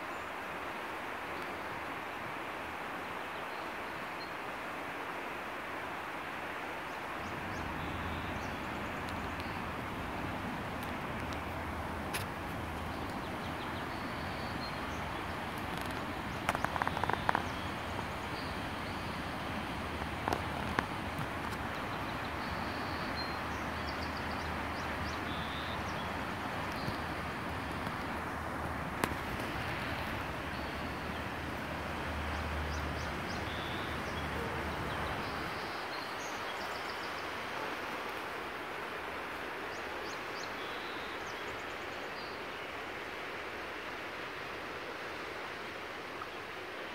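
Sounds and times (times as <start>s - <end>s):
steady rushing noise: 6.0s - 35.8s.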